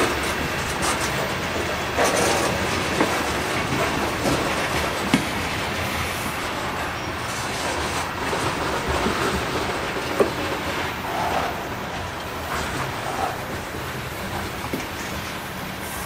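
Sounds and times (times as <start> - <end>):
train wheels clattering over rails: 0.0 - 16.0.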